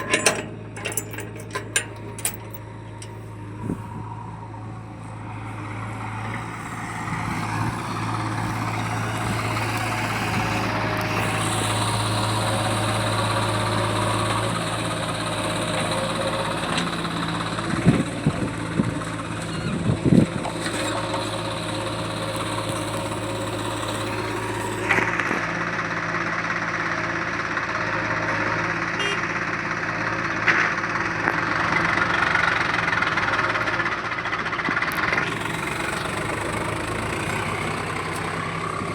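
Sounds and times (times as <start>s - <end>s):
heavy diesel engine idling: 0.0s - 38.9s.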